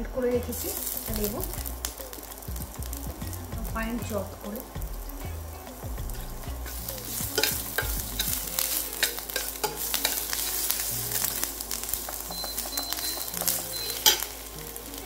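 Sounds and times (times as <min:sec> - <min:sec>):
ginger sizzling in oil: 0:00.0 - 0:15.0
spatula scraping and tapping pan: 0:06.6 - 0:14.4.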